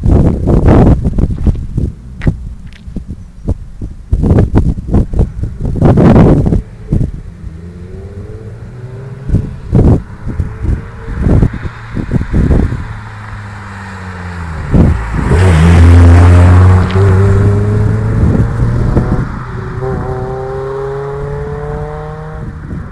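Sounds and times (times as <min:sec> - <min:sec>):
car engine accelerating: 0:05.0 - 0:22.9.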